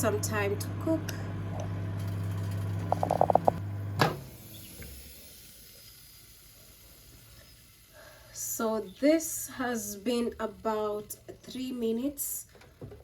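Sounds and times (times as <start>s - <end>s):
microwave humming: 0.0s - 4.6s.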